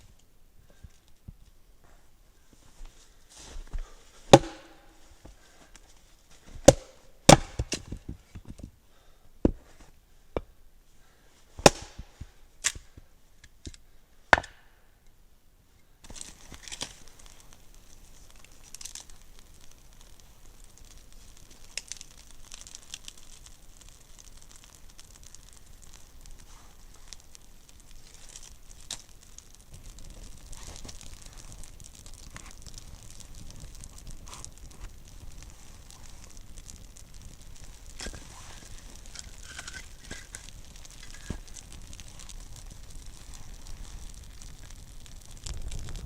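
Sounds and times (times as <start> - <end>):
crinkling rustle with small cracks: 0.0 - 46.0
wood being chopped: 4.3 - 4.9, 6.6 - 8.0, 11.6 - 12.1, 14.3 - 14.6.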